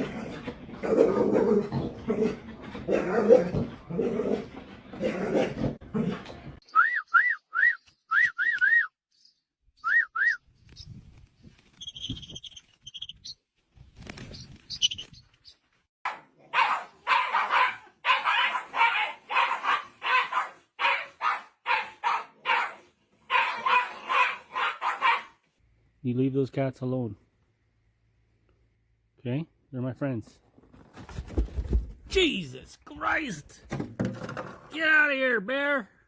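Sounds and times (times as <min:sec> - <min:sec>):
dog barking rapidly: 0:16.0 - 0:25.4.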